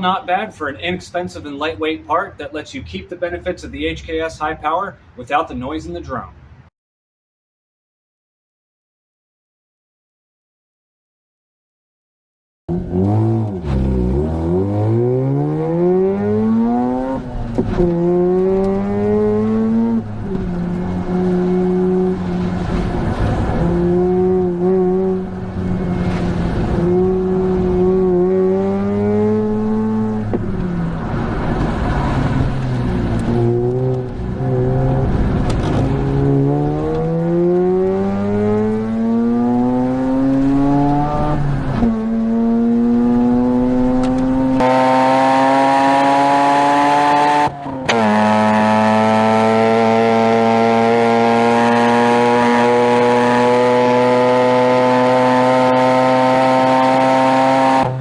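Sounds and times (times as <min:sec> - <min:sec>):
engine exhaust accelerating: 0:12.7 - 0:58.0.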